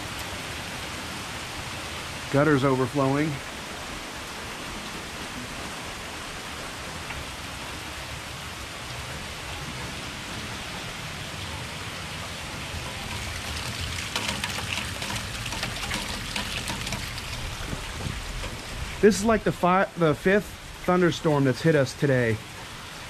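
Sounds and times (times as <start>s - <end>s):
heavy rain falling: 0.0s - 23.0s
water gushing from downspout: 10.1s - 23.0s.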